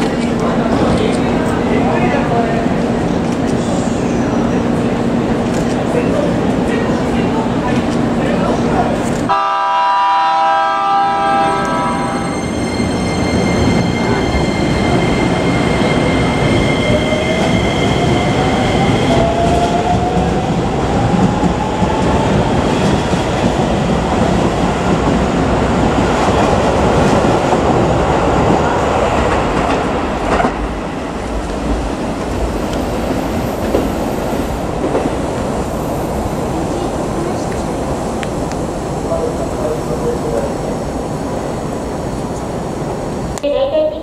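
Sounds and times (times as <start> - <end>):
train rumble and wheel clatter: 0.0 - 44.0
train whine rising in pitch: 9.3 - 20.1.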